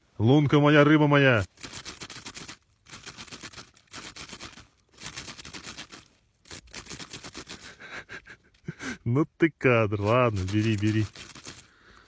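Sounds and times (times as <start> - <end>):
fox crunching on frozen fish: 1.4 - 8.6, 10.0 - 12.0.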